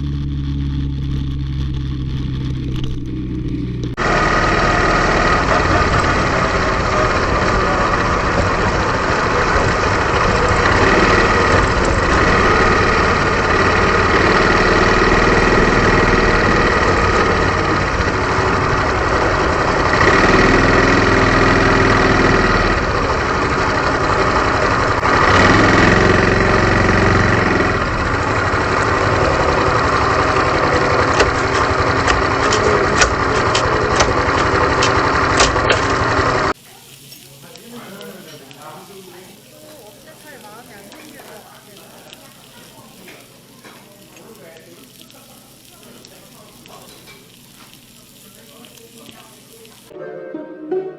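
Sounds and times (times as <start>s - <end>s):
motorcycle engine running: 0.0s - 36.7s.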